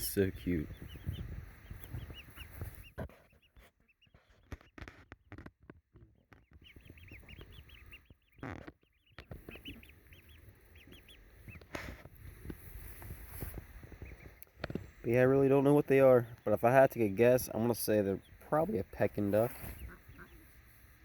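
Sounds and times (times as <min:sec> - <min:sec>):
ducklings peeping: 0:00.0 - 0:21.0
knocks and rustles: 0:00.7 - 0:09.8.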